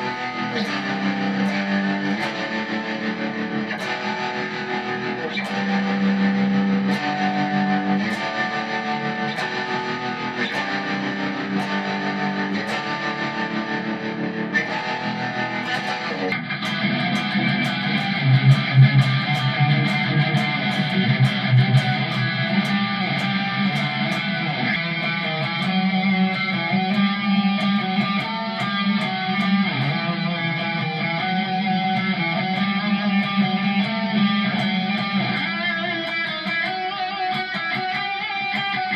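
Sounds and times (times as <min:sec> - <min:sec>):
electric guitar: 0:00.0 - 0:38.9.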